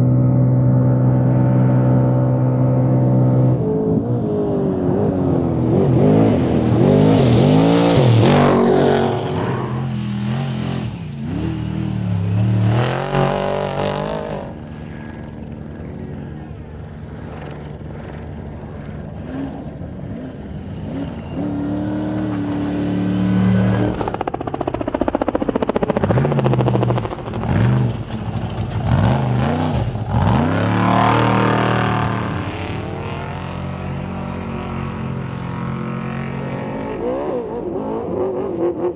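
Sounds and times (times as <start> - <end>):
truck engines revving and passing: 0.0 - 38.9.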